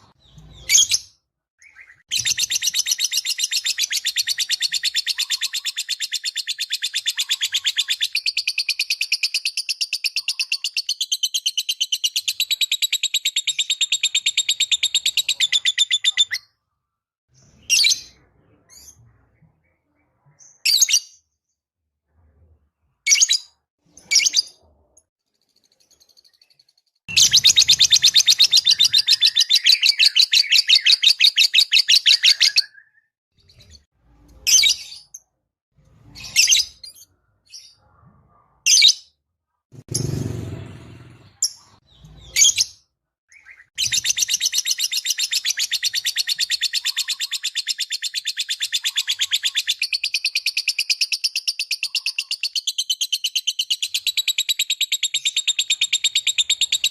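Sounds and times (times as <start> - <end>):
rapid high bird chirps: 0.0 - 16.6, 25.4 - 33.9, 43.3 - 56.9.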